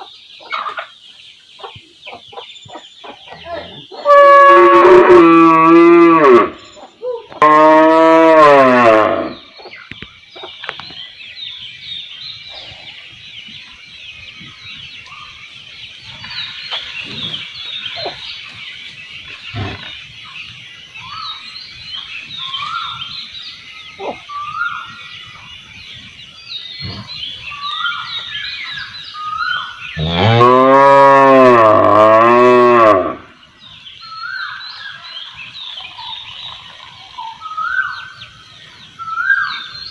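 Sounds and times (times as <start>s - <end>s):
small birds chirping: 0.0s - 4.1s, 6.5s - 7.4s, 9.2s - 31.2s, 32.0s - 39.9s
cow mooing: 3.4s - 6.6s, 7.4s - 9.4s, 30.0s - 33.2s.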